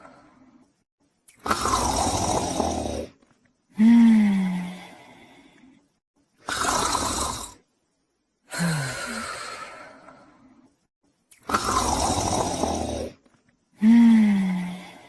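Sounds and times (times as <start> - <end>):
dog snoring with rasping breaths: 1.5 - 3.1, 11.5 - 13.2.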